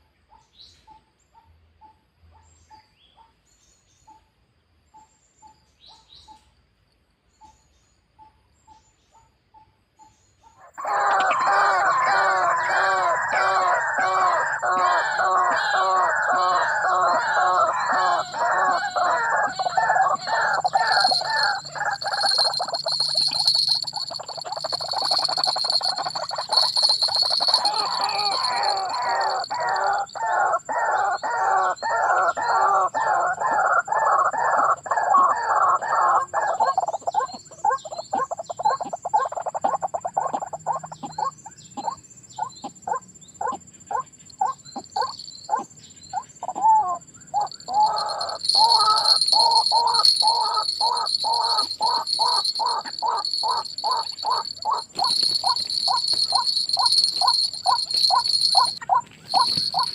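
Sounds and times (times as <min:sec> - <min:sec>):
waterhen croaking calls: 0:10.7 - 0:37.2, 0:42.9 - 0:45.7, 0:46.4 - 0:59.9
thin high steady tone: 0:17.7 - 0:30.2, 0:47.4 - 0:59.9.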